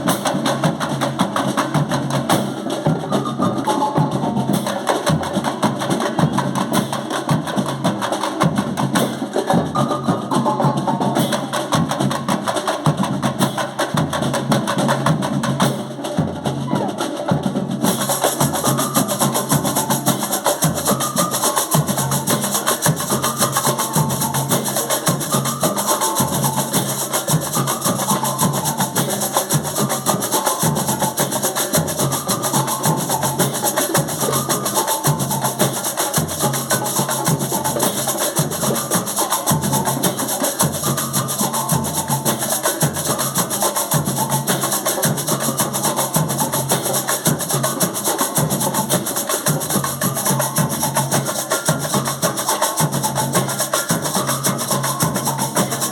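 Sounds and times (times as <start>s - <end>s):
woodblock-like percussion clicks: 17.8s - 55.9s.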